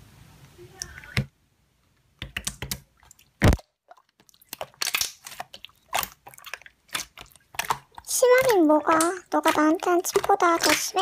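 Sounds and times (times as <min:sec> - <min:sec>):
slime popping and squishing: 0:03.4 - 0:11.0.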